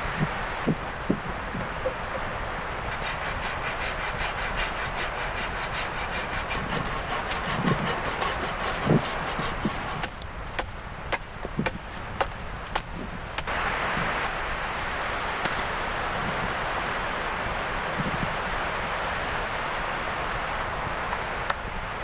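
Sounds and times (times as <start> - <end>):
wind noise: 0.0 - 22.0
hand saw cutting wood: 2.9 - 10.2.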